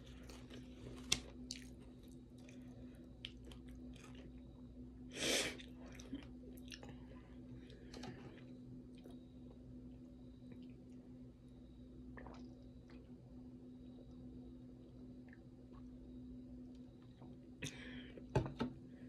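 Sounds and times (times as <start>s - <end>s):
person chewing food: 0.0s - 4.5s, 5.5s - 7.2s.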